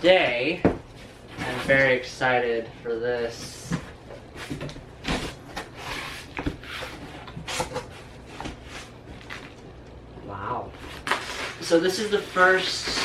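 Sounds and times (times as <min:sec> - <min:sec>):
packaging rustling and scraping: 0:03.4 - 0:09.7, 0:10.8 - 0:13.0.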